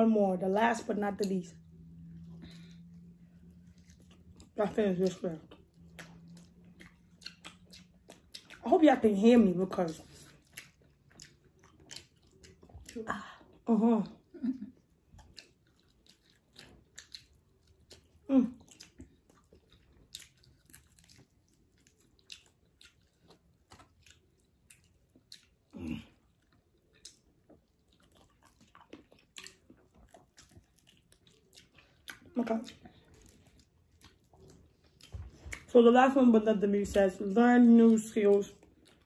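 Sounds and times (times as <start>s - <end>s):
wet eating clicks and smacks: 3.6s - 13.0s, 14.8s - 35.7s.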